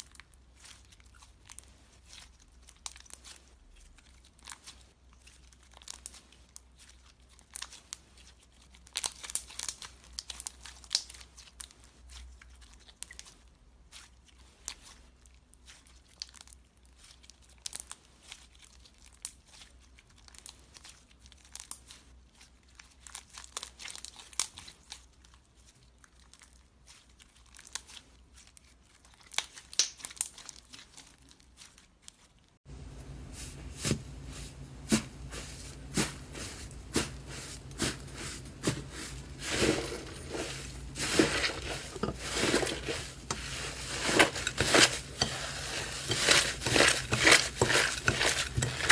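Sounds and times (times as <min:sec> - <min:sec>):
slime crackling and popping: 0:29.0 - 0:31.7
steady low hum: 0:32.7 - 0:48.9.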